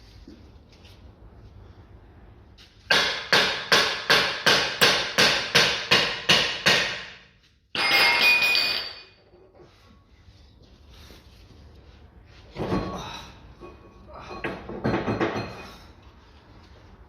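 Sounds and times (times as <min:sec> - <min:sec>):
hammer striking metal: 0:02.9 - 0:09.1.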